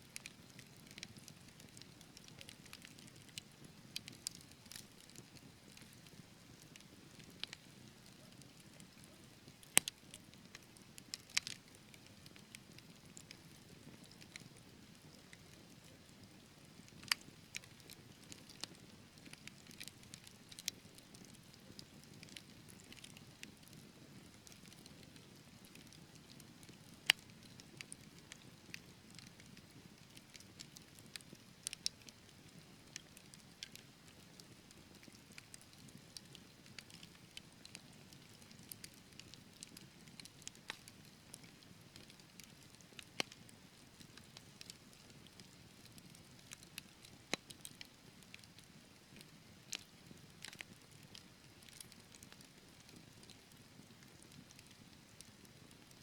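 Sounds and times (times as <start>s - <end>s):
wood fire crackling: 0.1s - 55.9s.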